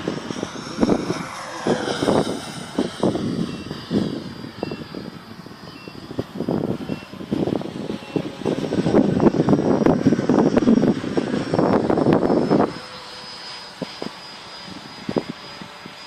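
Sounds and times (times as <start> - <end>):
model jet fan whining: 0.0 - 16.0
wind buffeting microphone: 0.0 - 16.0.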